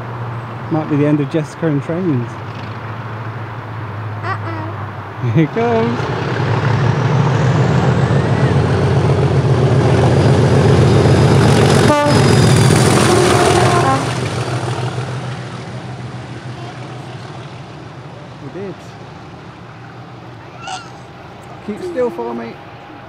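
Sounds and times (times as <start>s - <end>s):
diesel locomotive engine passing: 0.0s - 23.0s
locomotive horn toot: 11.8s - 14.2s.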